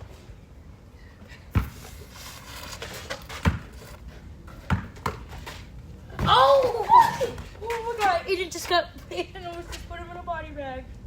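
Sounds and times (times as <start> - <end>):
basketball bouncing on court: 3.4 - 3.7, 4.6 - 5.3, 6.2 - 6.8.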